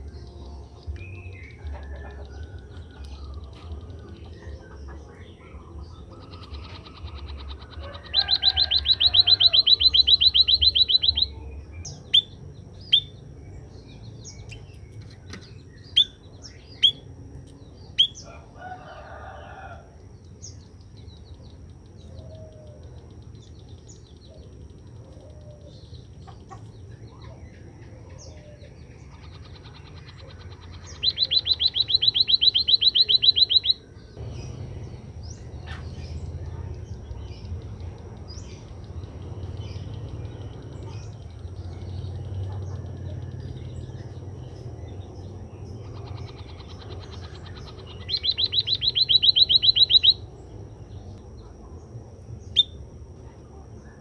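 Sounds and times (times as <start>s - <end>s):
bird sharp chirps: 6.2s - 13.2s, 29.1s - 36.6s, 45.6s - 50.3s.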